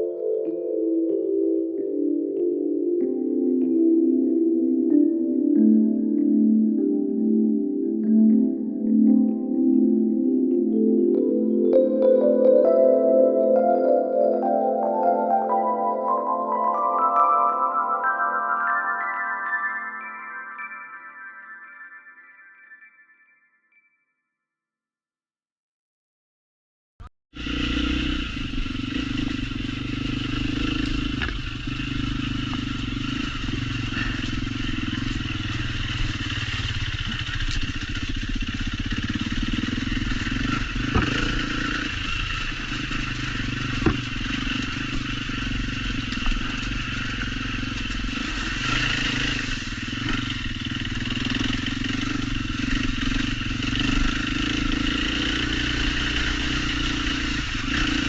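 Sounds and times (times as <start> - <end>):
motorcycle engine running: 27.3 - 58.0.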